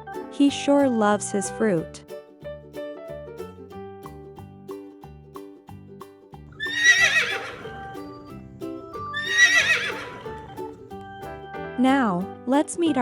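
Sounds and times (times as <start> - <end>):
light children's music: 0.0 - 13.0
horse whinnying: 6.6 - 7.9, 9.1 - 10.5.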